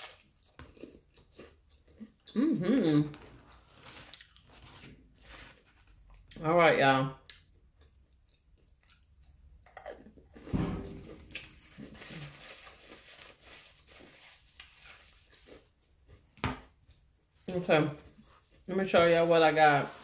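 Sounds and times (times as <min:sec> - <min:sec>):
person chewing food: 0:00.0 - 0:06.4, 0:07.2 - 0:10.5, 0:14.5 - 0:17.1
low thump: 0:10.5 - 0:11.4.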